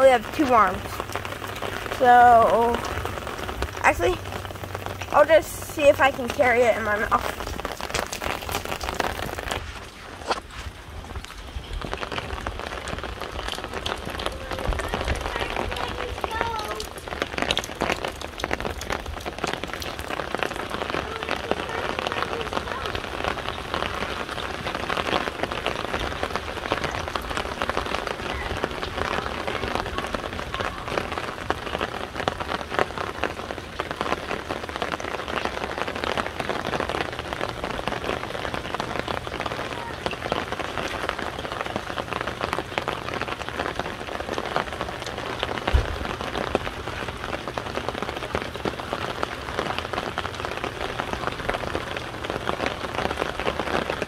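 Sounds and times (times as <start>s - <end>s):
rain on an umbrella: 0.0s - 54.0s
low thump: 45.7s - 46.0s.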